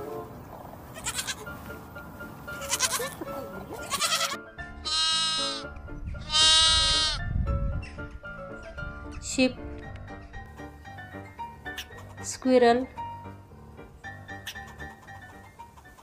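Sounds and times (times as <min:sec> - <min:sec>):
background music: 0:00.0 - 0:16.0
young goat bleating: 0:00.9 - 0:01.6, 0:02.5 - 0:05.6, 0:06.2 - 0:07.2
lamb bleating: 0:01.0 - 0:01.5, 0:02.5 - 0:03.2, 0:03.8 - 0:07.2.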